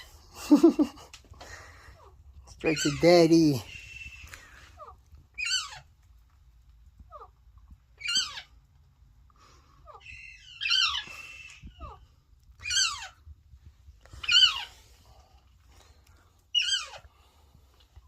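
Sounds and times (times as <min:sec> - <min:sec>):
parrot chick squawking: 0:02.0 - 0:05.9, 0:07.9 - 0:08.6, 0:09.8 - 0:13.3, 0:14.1 - 0:14.8, 0:16.5 - 0:17.1.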